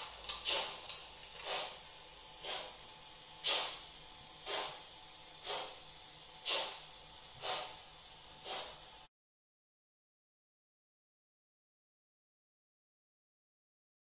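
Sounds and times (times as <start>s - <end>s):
model locomotive steam chuffs: 0.0s - 9.1s.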